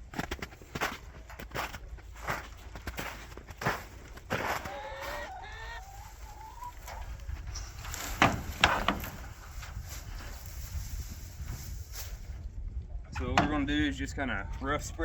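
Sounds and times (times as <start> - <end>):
chickens calling: 3.2 - 10.5
sharp rustling knocks: 6.8 - 10.4.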